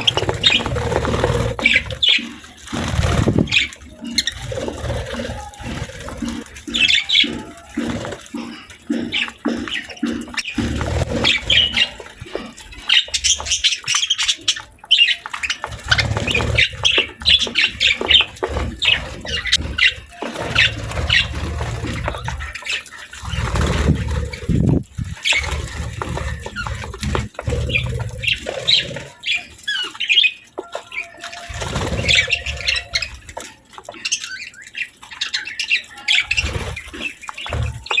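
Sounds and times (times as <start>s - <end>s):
low rumbling: 0.0s - 12.3s, 23.2s - 28.8s
budgerigars chirping: 0.0s - 24.5s, 26.4s - 38.0s.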